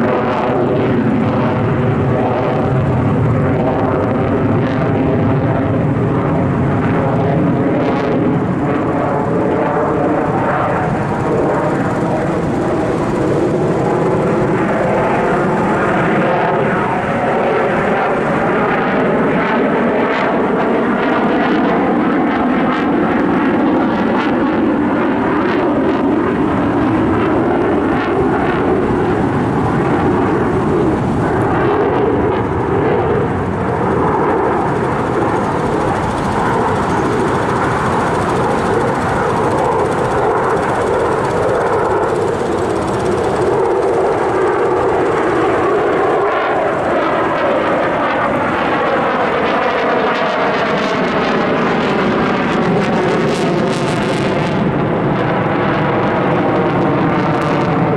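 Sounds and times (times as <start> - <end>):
airplane engine: 0.0 - 57.9.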